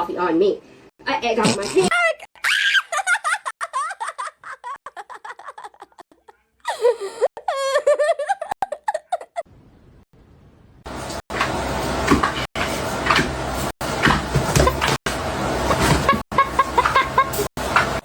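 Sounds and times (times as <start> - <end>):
person laughing: 1.8 - 9.5, 16.0 - 17.5.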